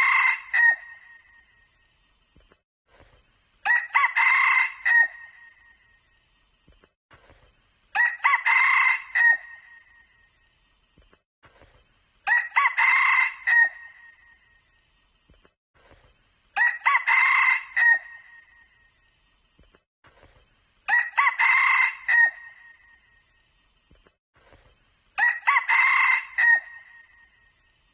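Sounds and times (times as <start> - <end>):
rooster crowing: 0.0 - 1.0, 3.7 - 5.3, 8.0 - 9.6, 12.3 - 14.0, 16.6 - 18.2, 20.9 - 22.6, 25.2 - 27.1.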